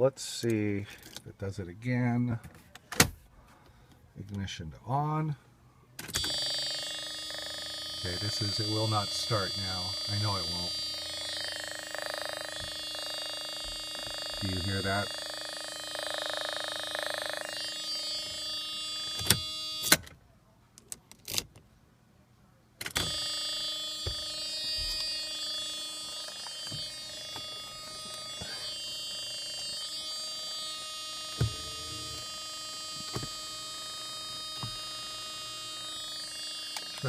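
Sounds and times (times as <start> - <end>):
electrical whine: 6.0 - 20.0, 22.8 - 37.0.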